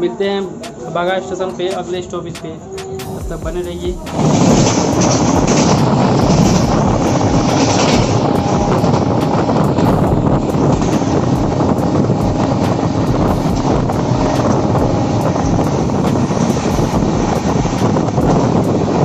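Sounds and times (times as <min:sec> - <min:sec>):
train rumble: 0:00.0 - 0:19.0
wind buffeting microphone: 0:03.0 - 0:19.0.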